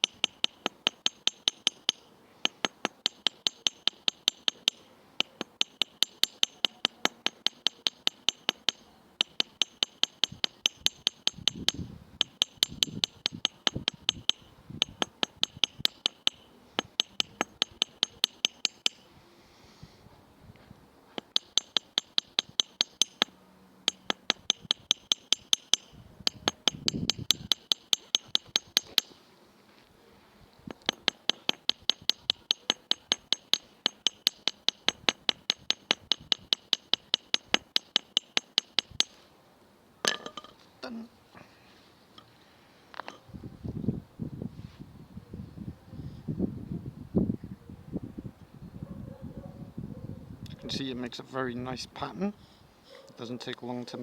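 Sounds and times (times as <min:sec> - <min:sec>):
hammer tapping on steel anvil: 0:00.0 - 0:19.1, 0:21.2 - 0:29.2, 0:30.7 - 0:39.2, 0:40.0 - 0:40.6.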